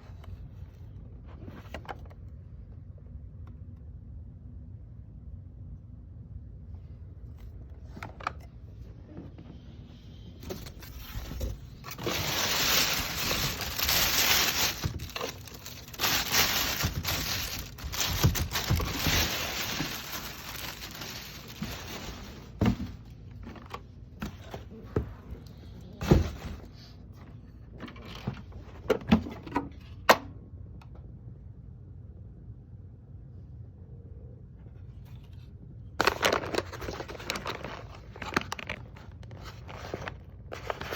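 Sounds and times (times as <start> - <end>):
packaging rustling and scraping: 10.3 - 24.8, 36.0 - 40.9.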